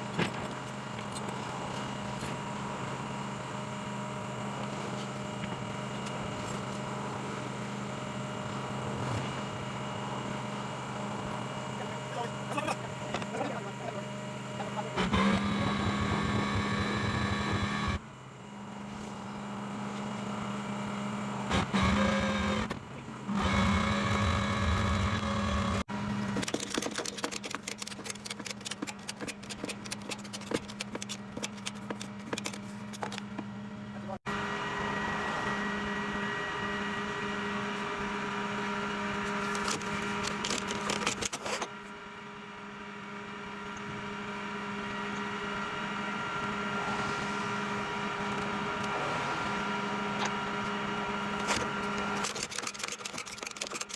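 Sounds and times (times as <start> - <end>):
tow truck mechanical hum: 0.1 - 46.8, 47.4 - 53.9
clicking and rattling: 26.3 - 33.4, 52.2 - 53.9.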